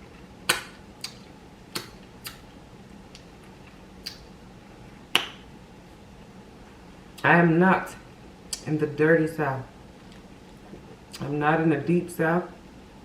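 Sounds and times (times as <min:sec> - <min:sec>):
mouth smacks and clicks eating: 0:00.4 - 0:02.5, 0:03.1 - 0:04.3.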